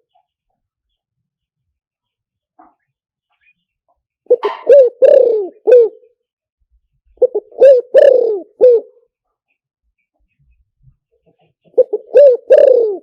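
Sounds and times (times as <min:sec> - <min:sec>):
dove cooing: 0:04.3 - 0:06.1, 0:07.2 - 0:09.0, 0:11.7 - 0:13.0.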